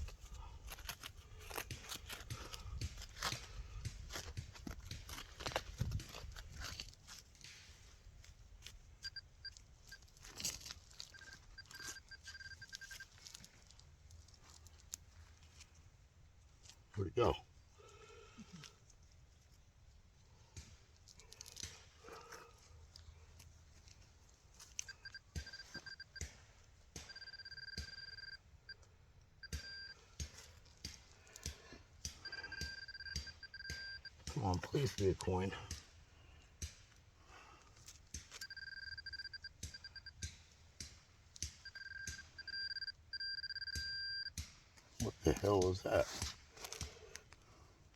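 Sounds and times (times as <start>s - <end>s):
dirt scraping and crunching: 0.0s - 17.1s, 44.8s - 47.6s
digging in dirt: 0.0s - 47.9s
pinpointer short high beeps: 9.0s - 10.0s, 11.1s - 13.1s, 24.8s - 26.3s, 27.1s - 28.4s, 29.4s - 30.0s, 32.2s - 34.2s, 38.4s - 40.2s, 41.6s - 44.4s.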